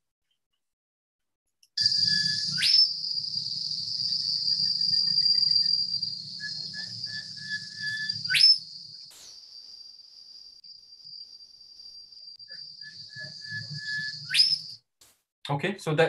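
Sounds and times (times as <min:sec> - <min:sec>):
rising metallic bird whistles: 0:01.8 - 0:09.1, 0:12.3 - 0:14.8
high-pitched insect drone: 0:01.8 - 0:14.7.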